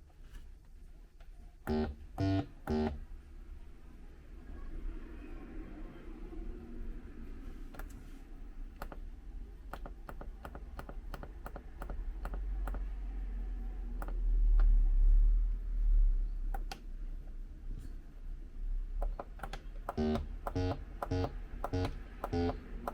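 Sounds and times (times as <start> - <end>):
synth buttons clicking: 1.7 - 3.0, 14.0 - 14.7, 19.0 - 22.9.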